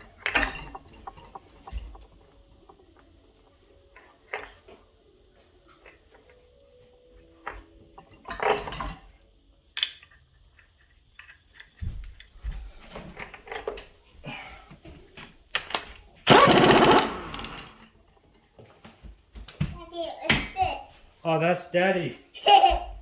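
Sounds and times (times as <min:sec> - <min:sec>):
loud metal rattling: 0:16.3 - 0:17.8
metal parts clinking and knocking: 0:16.3 - 0:17.8.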